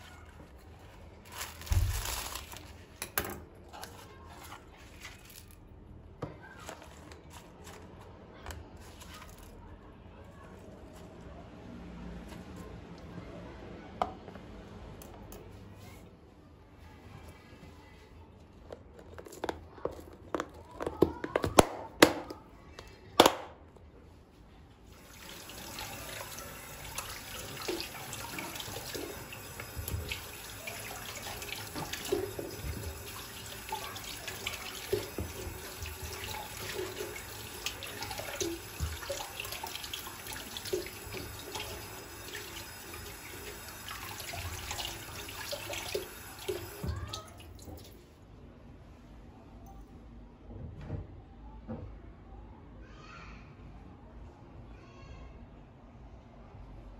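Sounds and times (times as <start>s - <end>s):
tap running into sink: 26.8s - 42.6s.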